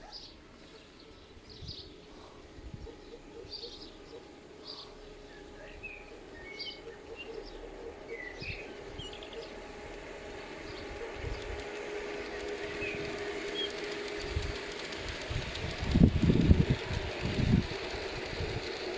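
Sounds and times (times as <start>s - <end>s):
small birds chirping: 0.0s - 14.0s
model train humming and clicking: 0.0s - 18.9s.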